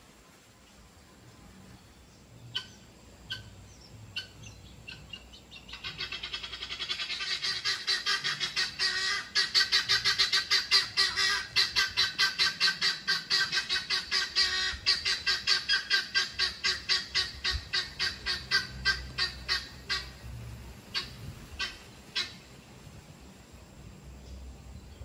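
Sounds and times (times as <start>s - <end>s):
birds calling rapidly: 2.4s - 22.5s.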